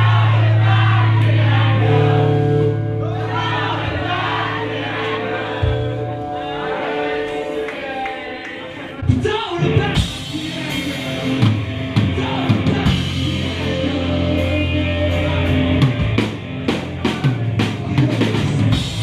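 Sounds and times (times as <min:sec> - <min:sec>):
held bass notes: 0:00.0 - 0:07.6, 0:09.0 - 0:19.0
voices singing together: 0:00.0 - 0:09.0, 0:09.9 - 0:15.9.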